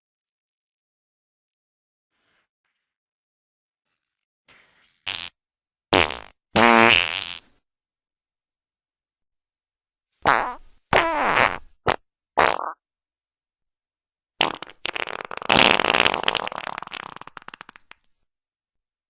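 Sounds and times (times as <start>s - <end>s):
fart sounds: 4.0s - 7.6s, 10.2s - 12.8s, 14.4s - 18.1s
long sputtering fart: 4.0s - 7.6s, 10.2s - 12.8s, 14.4s - 18.1s.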